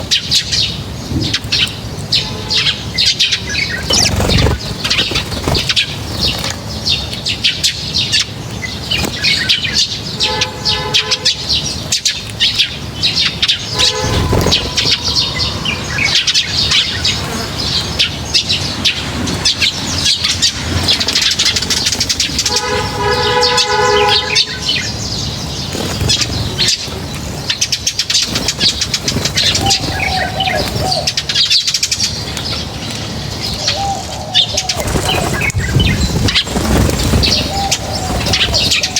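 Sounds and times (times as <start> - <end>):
birds chirping: 0.0 - 38.9
wings flapping: 3.5 - 7.6, 8.8 - 9.6, 12.3 - 17.9, 19.3 - 31.5, 34.5 - 38.9.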